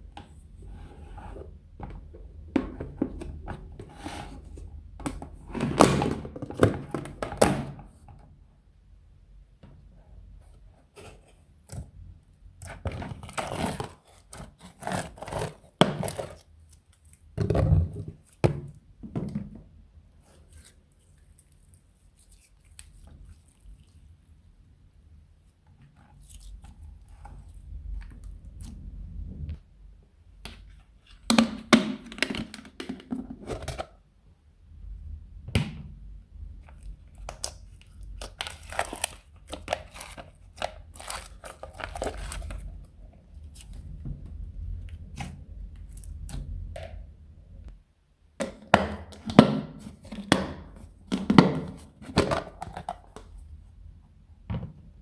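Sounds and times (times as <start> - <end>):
hands squishing slime: 20.3 - 24.3, 36.7 - 44.0.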